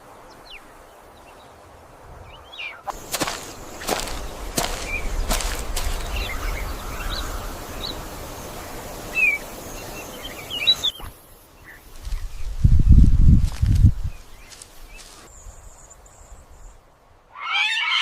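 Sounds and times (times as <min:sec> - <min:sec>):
birds chirping: 0:02.2 - 0:13.0, 0:14.0 - 0:16.8
heavy low thuds: 0:02.9 - 0:06.8.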